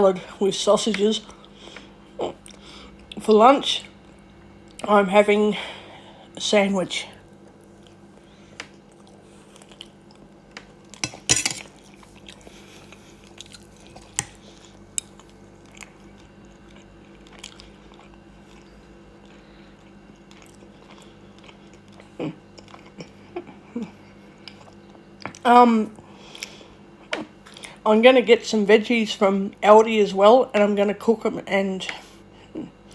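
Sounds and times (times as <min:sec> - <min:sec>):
faint steady hum: 0:00.0 - 0:32.9
person chewing: 0:07.3 - 0:25.4
cutlery tapping on plate: 0:11.0 - 0:11.7.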